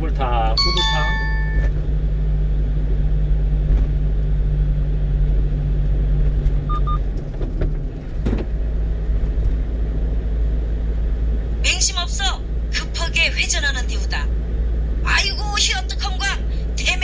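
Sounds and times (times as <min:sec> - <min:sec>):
truck engine and road noise: 0:00.0 - 0:17.0
faint double beep: 0:00.6 - 0:01.7, 0:06.7 - 0:07.0.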